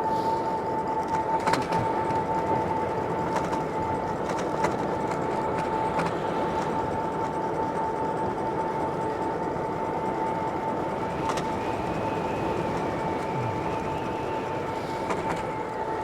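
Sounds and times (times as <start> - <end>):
higher wavering whine: 10.6 - 16.0
electric motor whine: 11.4 - 16.0.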